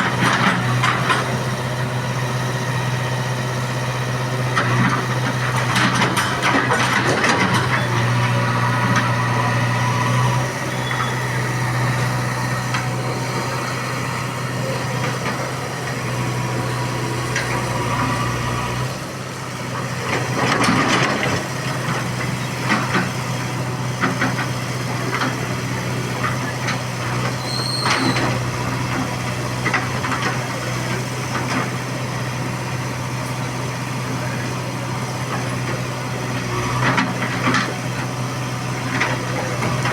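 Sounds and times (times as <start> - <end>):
heavy diesel engine running: 0.0 - 39.9
knocks and rattling clatter: 4.6 - 7.9.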